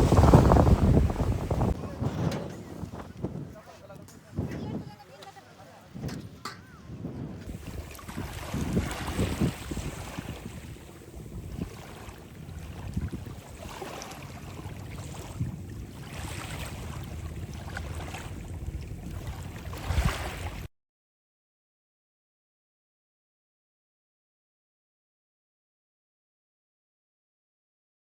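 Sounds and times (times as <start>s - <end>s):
sea waves washing in: 0.0s - 3.3s, 6.8s - 20.7s
wind rumbling on microphone: 0.0s - 20.7s.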